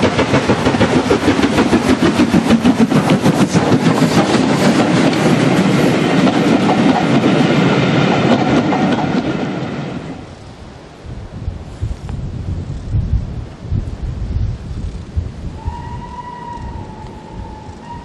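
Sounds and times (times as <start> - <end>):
train wheels clattering over rail joints: 0.0 - 10.0.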